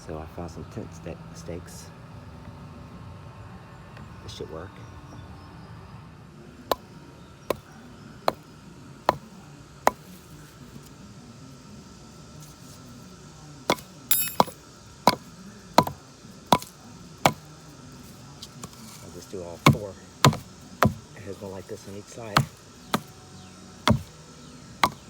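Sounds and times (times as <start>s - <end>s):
hammer striking metal tent stakes: 9.9s - 10.2s, 13.7s - 17.5s, 18.6s - 23.2s, 23.8s - 24.2s.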